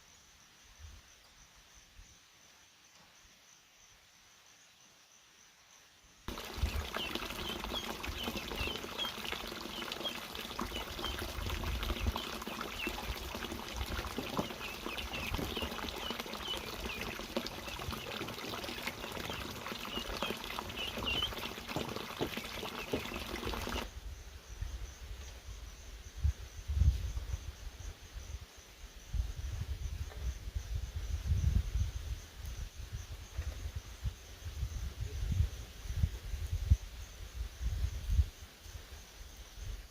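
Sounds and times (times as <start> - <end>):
faint insects: 0.0 - 39.9
water trickling: 6.3 - 23.9.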